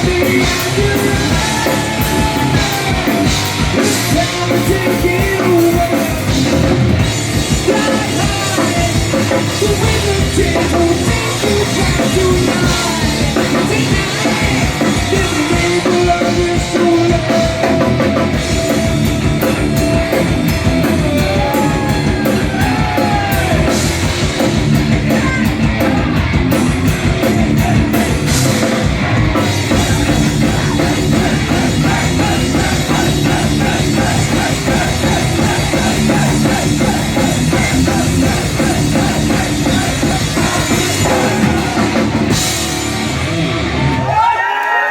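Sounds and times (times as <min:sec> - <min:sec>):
person singing: 0:00.0 - 0:06.6, 0:07.5 - 0:19.5, 0:20.8 - 0:23.9, 0:29.4 - 0:42.4
heavy rock band playing: 0:00.0 - 0:44.9.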